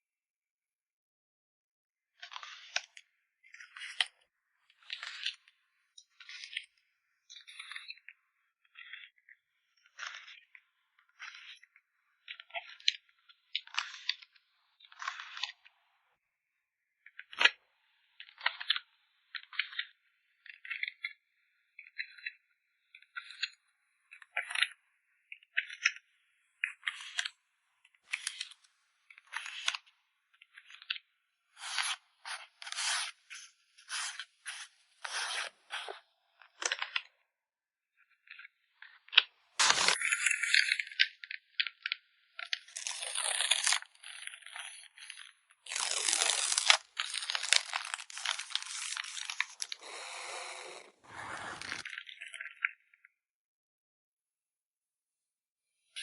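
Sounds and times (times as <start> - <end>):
packaging rustle: 39.6 - 40.1, 45.7 - 52.0
plastic sleeves crinkling: 39.6 - 40.8, 42.6 - 52.0.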